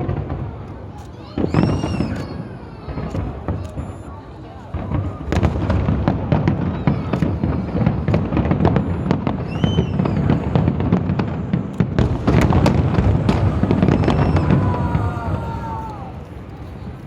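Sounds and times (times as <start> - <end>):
fireworks booms and cracks: 0.0 - 17.0
firework whistle: 1.2 - 16.3.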